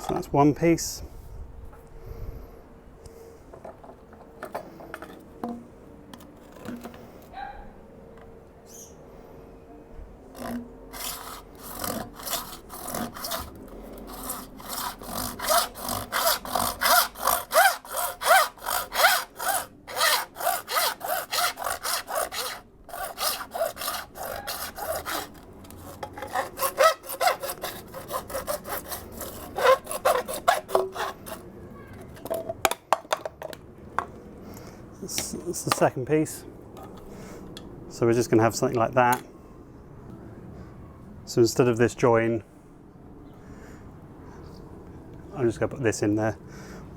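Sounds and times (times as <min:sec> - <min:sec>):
hand saw cutting plastic pipe: 0:10.3 - 0:31.5.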